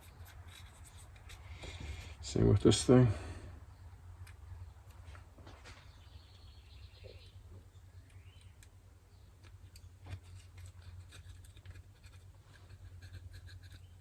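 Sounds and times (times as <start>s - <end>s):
small metal parts clicking: 9.4s - 14.0s.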